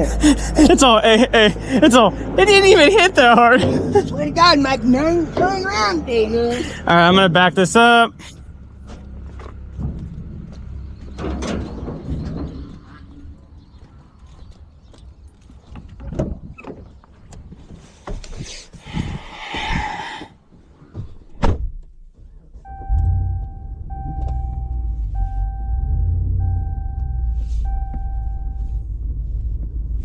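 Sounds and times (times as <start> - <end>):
vehicle engine running: 0.0 - 15.6, 22.6 - 30.0
knocks and clatter: 8.8 - 13.1
backup alarm beeping: 22.6 - 28.9.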